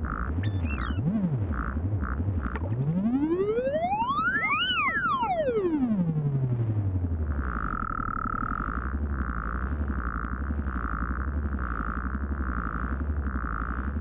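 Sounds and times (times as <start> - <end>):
low drone with rattling pulse: 0.0 - 4.0, 5.4 - 14.0
higher pulsing tone: 0.4 - 1.2, 2.5 - 6.0.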